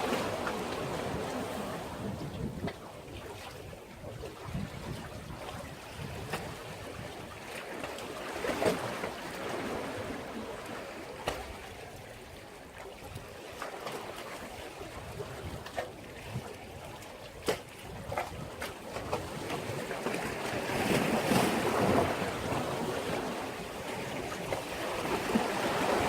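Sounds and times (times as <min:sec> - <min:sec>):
waves washing against a breakwater: 0:00.0 - 0:26.0
water slapping: 0:15.0 - 0:26.0.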